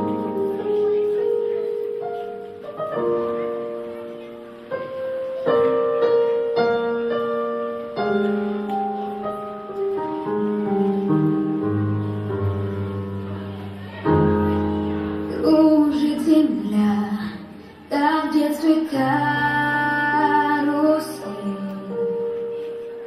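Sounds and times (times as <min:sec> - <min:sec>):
gentle piano chords and melody: 0:00.0 - 0:17.3, 0:17.9 - 0:23.0.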